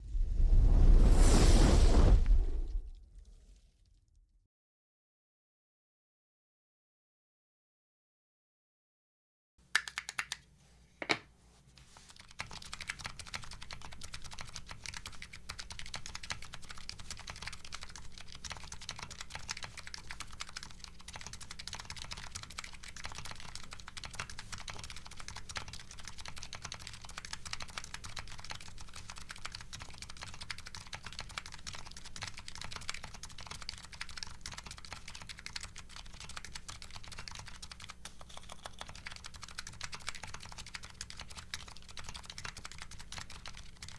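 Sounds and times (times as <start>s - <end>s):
fast keyboard typing: 9.8s - 10.5s, 11.8s - 43.9s.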